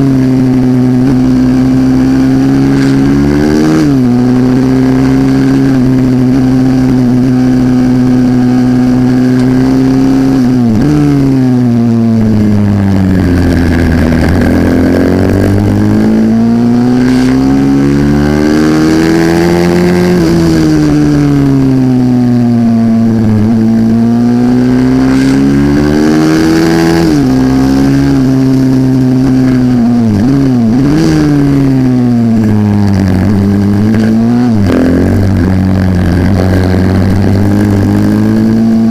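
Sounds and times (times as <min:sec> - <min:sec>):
motorbike engine racing: 0:00.0 - 0:38.9.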